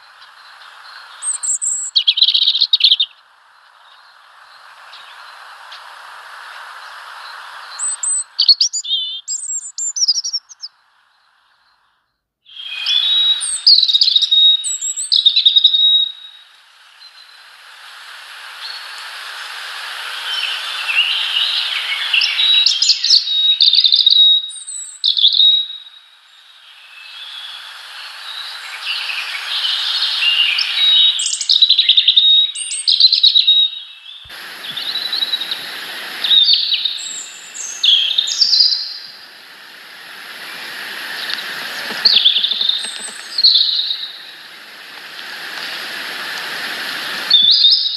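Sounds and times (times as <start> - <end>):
small birds chirping: 0.0 - 17.6, 18.5 - 47.9
rushing noise: 16.3 - 22.2, 34.3 - 47.5.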